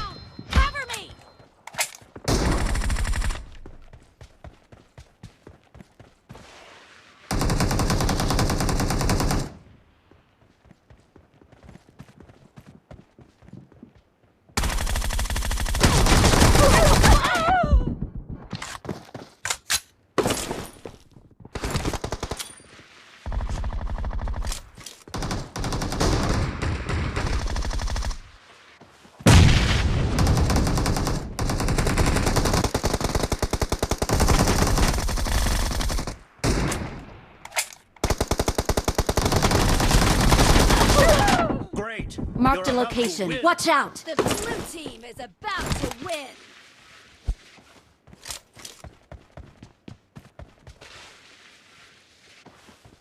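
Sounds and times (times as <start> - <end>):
video game automatic gunfire: 7.3 - 9.6, 25.2 - 28.2, 30.2 - 36.2, 38.0 - 41.1.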